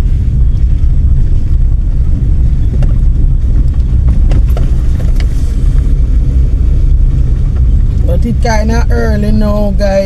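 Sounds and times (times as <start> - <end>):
car driving rumble: 0.0 - 10.0
knocks and rattles: 1.6 - 6.4.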